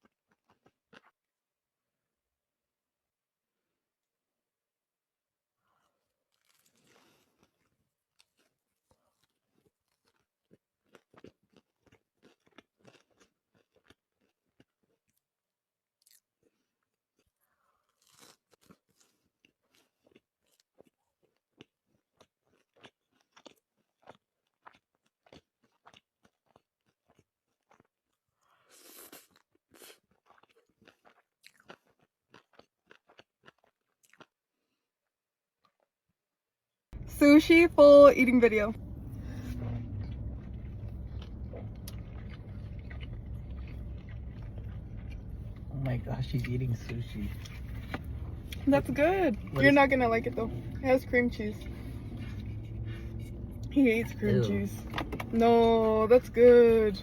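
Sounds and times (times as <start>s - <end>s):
person chewing food: 0.0s - 1.5s, 5.6s - 36.0s, 38.8s - 48.7s, 51.6s - 53.7s.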